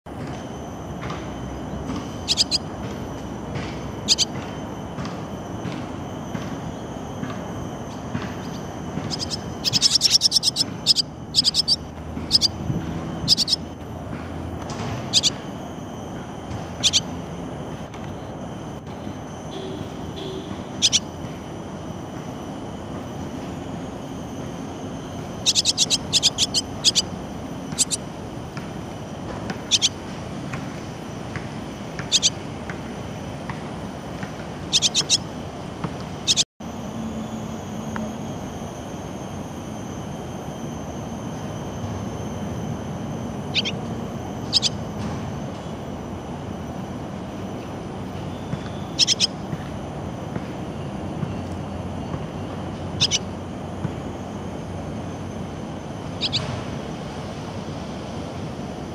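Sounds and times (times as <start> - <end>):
swallows chirping: 2.3 - 2.6, 4.1 - 4.3, 8.4 - 12.6, 13.2 - 13.7, 15.1 - 15.4, 16.8 - 17.1, 20.8 - 21.0, 25.4 - 27.1, 27.7 - 28.0, 29.7 - 30.0, 32.0 - 32.4, 34.7 - 35.2, 43.5 - 43.8, 44.5 - 44.8, 48.8 - 49.3, 53.0 - 53.2, 56.2 - 56.5.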